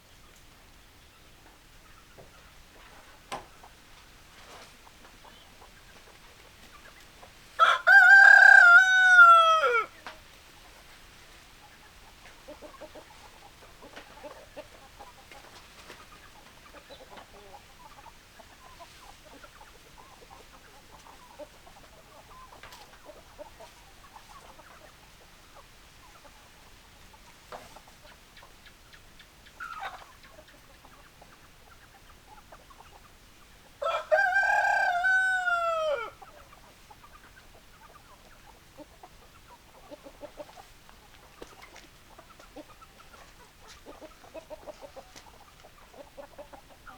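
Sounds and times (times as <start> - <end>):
chicken clucking: 0.2 - 46.9
rooster crowing: 7.6 - 10.0, 33.8 - 36.2.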